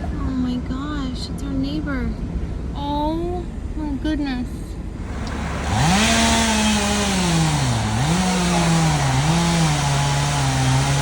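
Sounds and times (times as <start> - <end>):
chainsaw running: 5.0 - 11.0.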